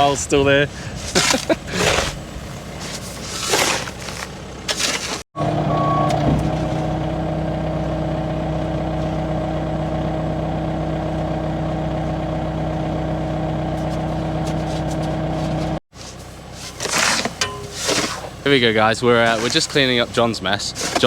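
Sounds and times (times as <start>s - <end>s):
vehicle engine idling: 4.1s - 4.7s, 5.4s - 21.0s.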